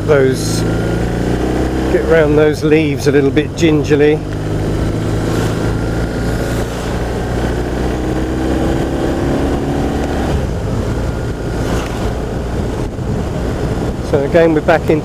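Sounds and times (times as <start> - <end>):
motorcycle engine accelerating: 0.0 - 15.0
wind rushing over microphone: 0.0 - 15.0.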